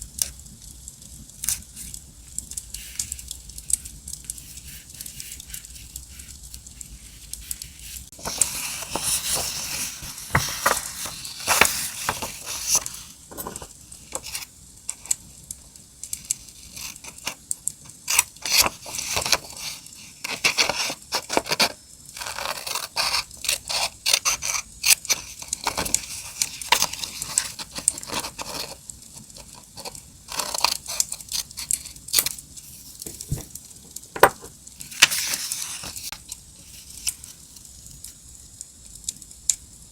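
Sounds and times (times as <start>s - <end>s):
paper rustling and tearing: 4.4s - 14.5s, 18.1s - 33.6s, 34.8s - 36.2s.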